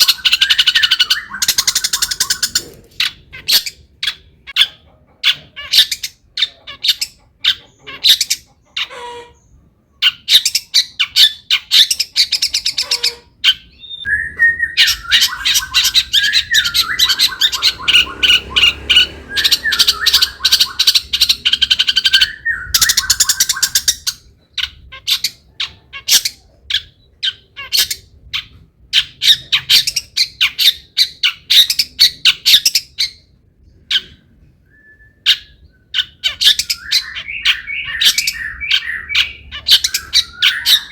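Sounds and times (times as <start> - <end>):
shrike singing harsh chattering song: 0.0 - 4.5, 13.8 - 24.1.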